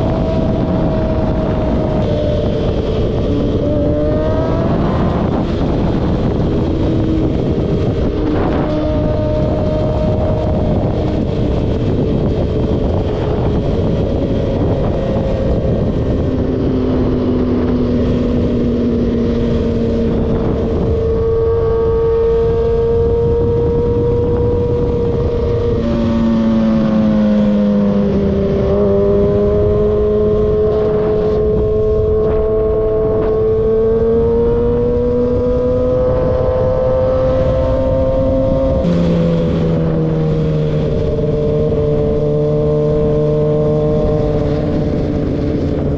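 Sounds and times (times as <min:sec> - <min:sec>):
vehicle engine running: 0:37.5 - 0:45.9.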